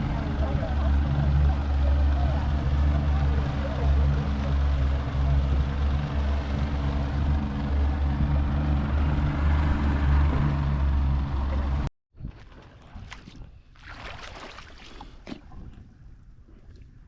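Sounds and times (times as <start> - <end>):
motorboat engine running: 0.0 - 11.9.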